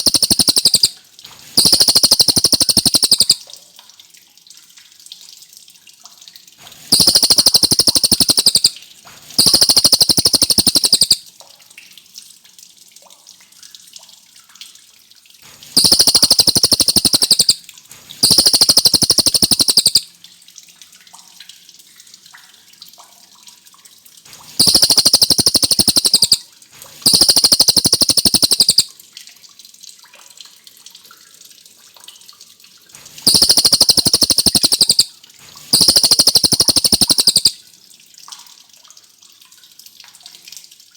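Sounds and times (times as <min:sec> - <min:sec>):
songbird rolling trills: 0:00.0 - 0:00.9, 0:01.6 - 0:03.4, 0:06.9 - 0:08.7, 0:09.4 - 0:11.2, 0:15.8 - 0:17.6, 0:18.2 - 0:20.0, 0:24.6 - 0:26.4, 0:27.0 - 0:28.9, 0:33.2 - 0:35.1, 0:35.7 - 0:37.6
faint hiss: 0:00.0 - 0:03.4, 0:06.9 - 0:11.2, 0:15.5 - 0:17.6, 0:18.2 - 0:20.0, 0:24.6 - 0:28.9, 0:33.1 - 0:37.6.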